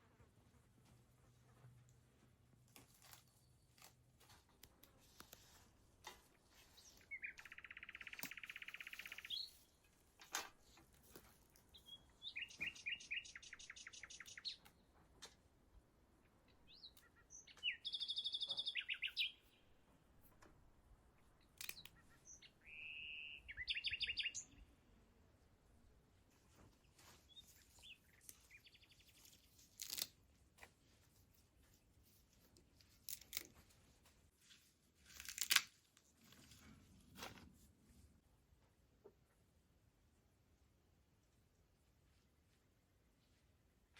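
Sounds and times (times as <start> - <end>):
small birds chirping: 6.4 - 9.8, 11.6 - 15.0, 16.2 - 19.8, 21.1 - 24.7, 26.5 - 30.1.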